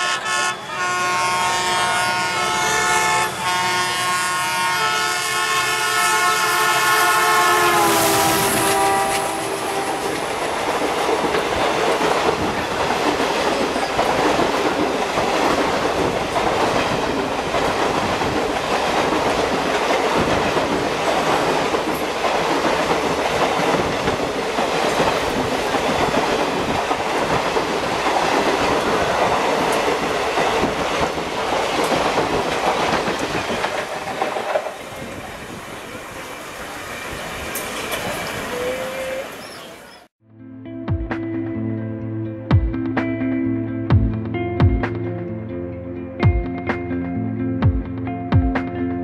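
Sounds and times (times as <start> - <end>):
train wheels clattering over rails: 8.2 - 35.6.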